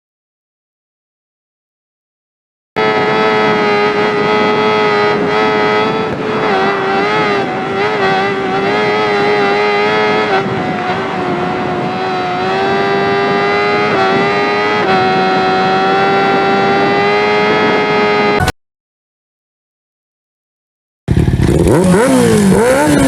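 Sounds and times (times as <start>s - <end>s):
motorcycle engine at high revs: 2.8s - 18.5s, 21.1s - 23.0s.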